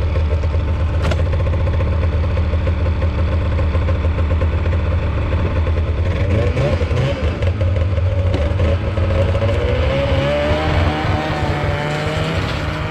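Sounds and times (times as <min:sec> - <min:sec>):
snowmobile engine running: 0:00.0 - 0:12.9.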